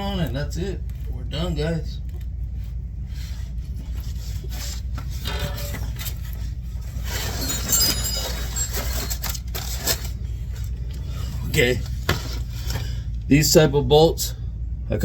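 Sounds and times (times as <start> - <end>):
steady low hum: 0.0 - 15.0
metal clinks and scraping: 5.0 - 10.8.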